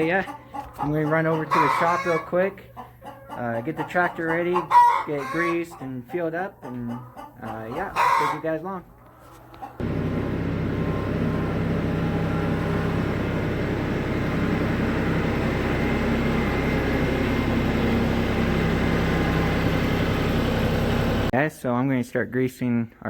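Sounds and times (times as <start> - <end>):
vehicle engine running: 9.8 - 21.3.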